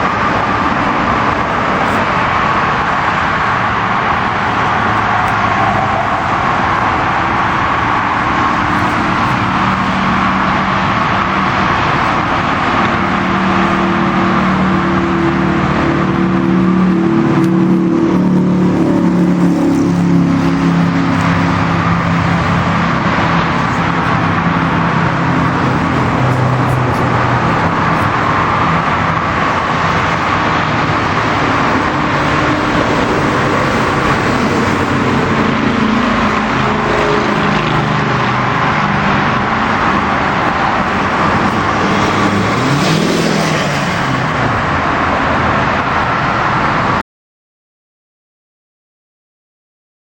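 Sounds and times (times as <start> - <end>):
motorcycle engine running: 8.5 - 43.5.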